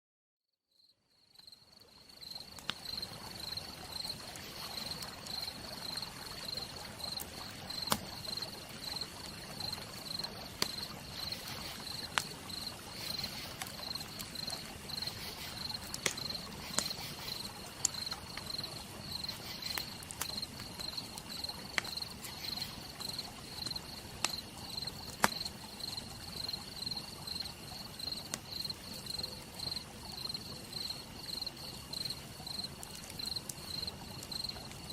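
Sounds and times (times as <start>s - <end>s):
cricket chirping: 0.7s - 34.9s
campfire crackling and popping: 2.0s - 34.9s
rain hissing: 2.5s - 34.9s.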